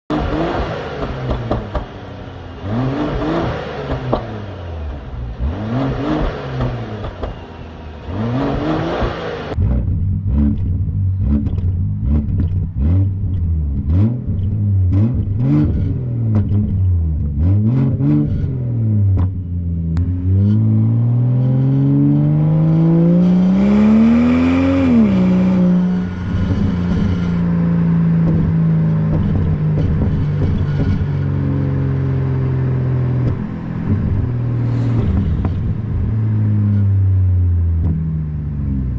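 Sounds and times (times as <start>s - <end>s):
car engine revving: 0.0s - 38.9s
car engine idling: 0.1s - 15.4s, 26.0s - 38.9s.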